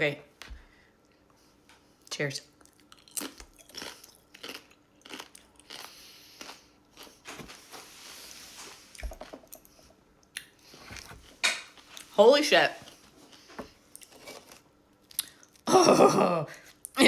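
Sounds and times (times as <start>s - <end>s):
person chewing crisp chip: 2.6s - 7.5s.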